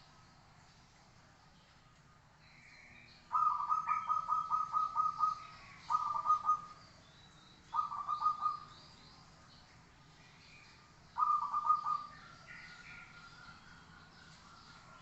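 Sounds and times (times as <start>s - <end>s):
faint high bird chirps: 2.4s - 15.0s
dove cooing: 3.3s - 6.8s, 7.7s - 8.7s, 11.2s - 12.2s.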